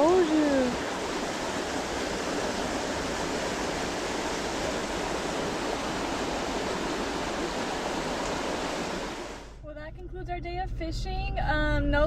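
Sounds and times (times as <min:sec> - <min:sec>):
creek water rushing: 0:00.0 - 0:09.6.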